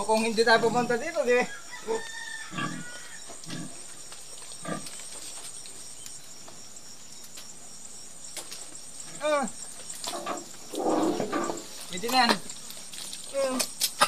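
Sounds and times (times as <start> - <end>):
pigs grunting: 2.5 - 5.2, 10.1 - 11.7.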